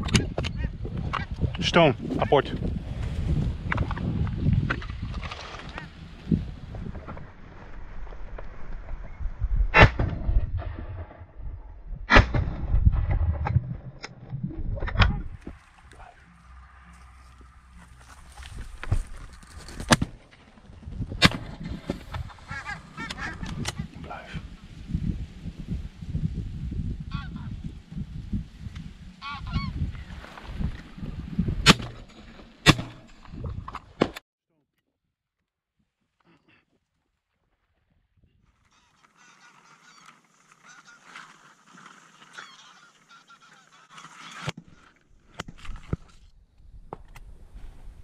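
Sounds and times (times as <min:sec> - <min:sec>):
low rumble: 0:06.0 - 0:33.7
wild geese honking: 0:22.2 - 0:23.9, 0:27.1 - 0:27.6, 0:29.2 - 0:29.8, 0:38.6 - 0:44.9.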